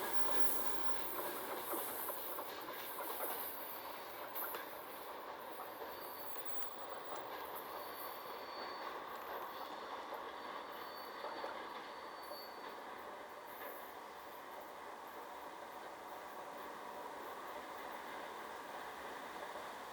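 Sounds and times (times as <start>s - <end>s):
train wheels rumbling on rails: 0.0s - 19.9s
high wheel squeal: 7.4s - 9.9s, 10.6s - 13.0s.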